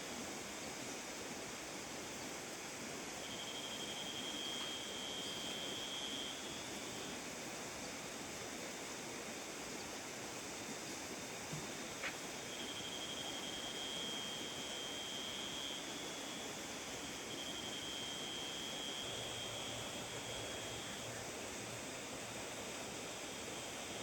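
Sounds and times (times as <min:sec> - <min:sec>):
steady rain hiss: 0:00.0 - 0:24.0
faint high thin tone: 0:03.2 - 0:06.7.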